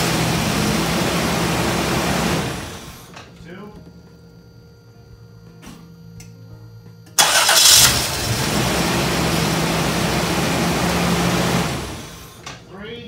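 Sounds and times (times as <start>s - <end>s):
car engine starting and running: 0.0s - 3.1s, 7.2s - 12.5s.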